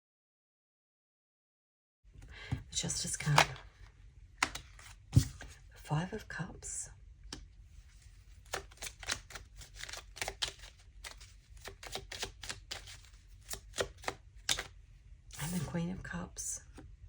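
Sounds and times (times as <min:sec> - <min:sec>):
cards clicking and flicking: 0:04.4 - 0:05.4, 0:08.4 - 0:14.8.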